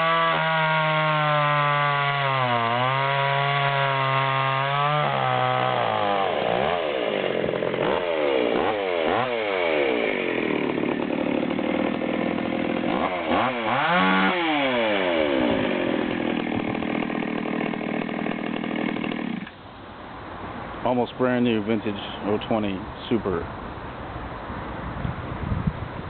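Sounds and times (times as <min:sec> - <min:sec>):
chainsaw revving: 0:00.0 - 0:19.6.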